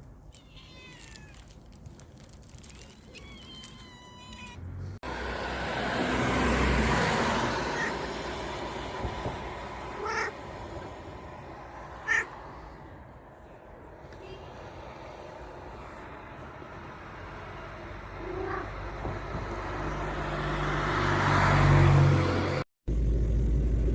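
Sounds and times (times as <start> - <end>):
cat meowing: 0.3 - 1.6, 2.7 - 4.6, 7.6 - 8.0, 10.0 - 10.4, 11.9 - 12.4, 18.2 - 18.8.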